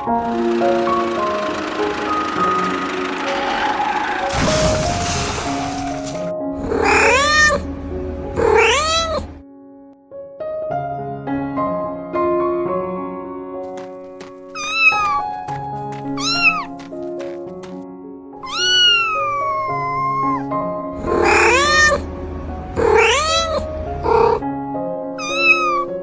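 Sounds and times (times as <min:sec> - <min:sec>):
soft piano music: 0:00.0 - 0:04.5, 0:05.6 - 0:26.0
cat meowing: 0:06.7 - 0:07.7, 0:08.4 - 0:09.3, 0:14.6 - 0:15.3, 0:16.2 - 0:16.7, 0:18.4 - 0:22.1, 0:22.8 - 0:24.4, 0:25.2 - 0:26.0.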